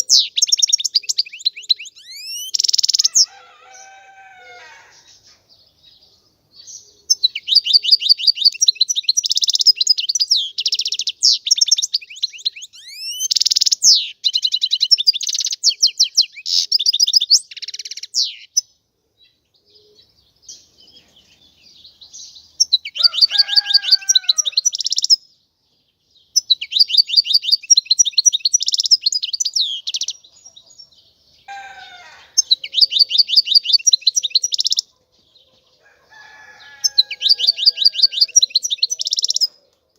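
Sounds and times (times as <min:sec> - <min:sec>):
goldfinch singing: 0:00.0 - 0:03.3, 0:06.6 - 0:18.7, 0:26.3 - 0:30.6, 0:31.6 - 0:34.9, 0:36.7 - 0:39.6.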